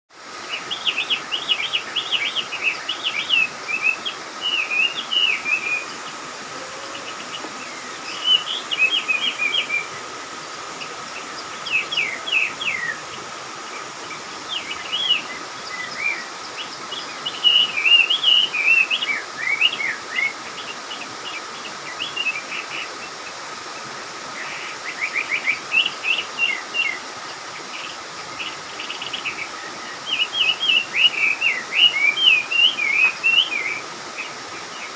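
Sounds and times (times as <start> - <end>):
small birds chirping: 0.3 - 34.9.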